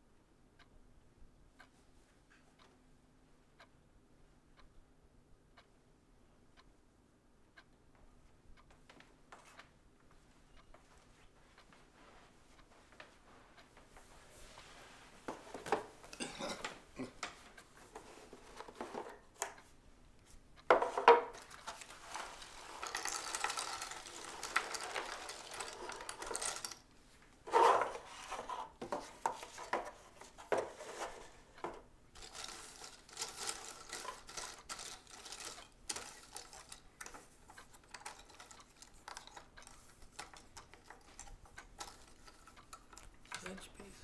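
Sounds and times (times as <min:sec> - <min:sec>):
rustling: 0:17.3 - 0:44.0
clicks clinks and knocks: 0:20.7 - 0:26.8.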